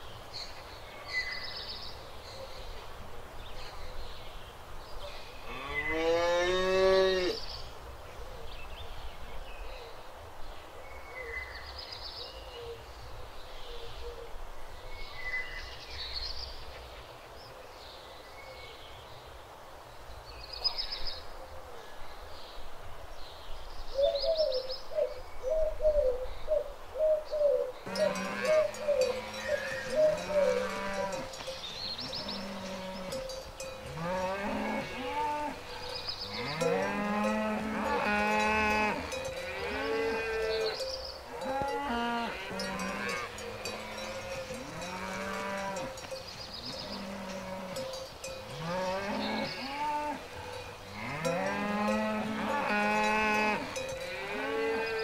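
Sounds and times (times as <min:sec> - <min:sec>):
small birds chirping: 0:23.2 - 0:52.1
cow mooing: 0:27.9 - 0:31.4, 0:32.0 - 0:46.0, 0:46.8 - 0:55.0.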